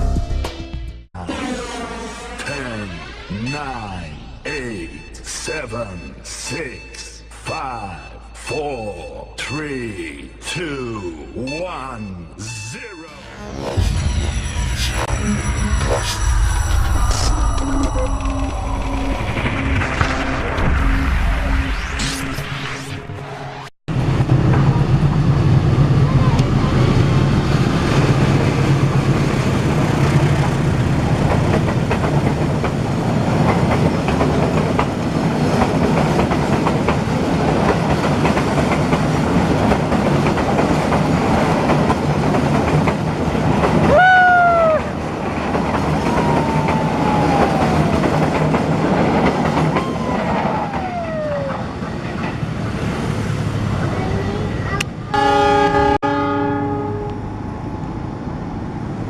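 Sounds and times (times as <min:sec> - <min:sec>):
train rumble and wheel clatter: 0:23.9 - 0:59.0
train horn blast: 0:55.1 - 0:57.3.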